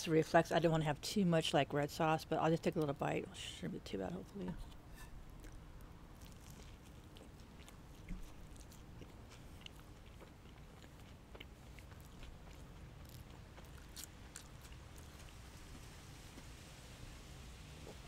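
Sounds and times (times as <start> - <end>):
person chewing food: 4.6 - 16.7.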